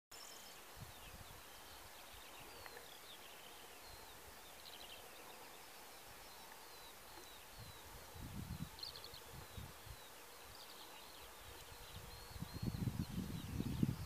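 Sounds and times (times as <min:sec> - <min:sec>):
small birds chirping and whistling: 0:00.2 - 0:14.0
soft hiss: 0:00.2 - 0:14.0
wind rumble on microphone: 0:07.5 - 0:10.7, 0:11.3 - 0:14.0.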